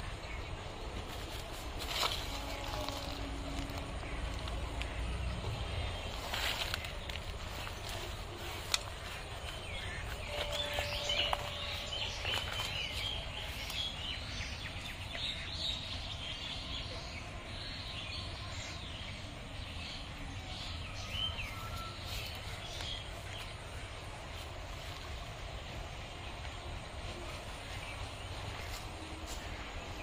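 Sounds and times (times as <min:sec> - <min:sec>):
low background rumble: 0:00.0 - 0:21.6.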